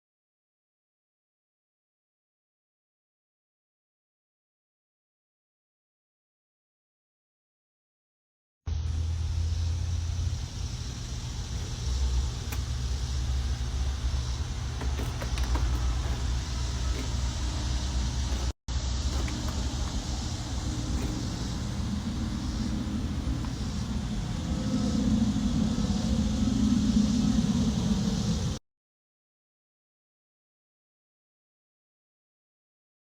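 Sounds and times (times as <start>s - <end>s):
low hum: 8.8s - 28.6s
moving car rumble: 8.8s - 28.6s.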